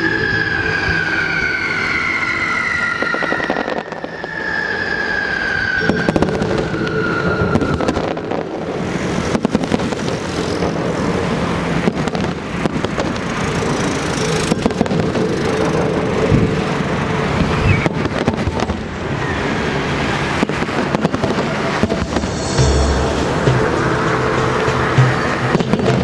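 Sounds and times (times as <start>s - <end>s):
firework whistles: 0.0s - 10.8s, 17.4s - 25.5s.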